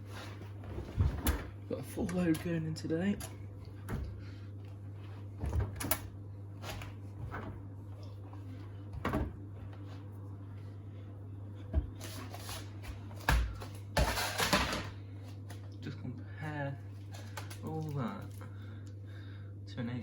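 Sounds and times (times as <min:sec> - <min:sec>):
laundry rustling: 0:00.0 - 0:10.8
steady low hum: 0:00.0 - 0:20.0.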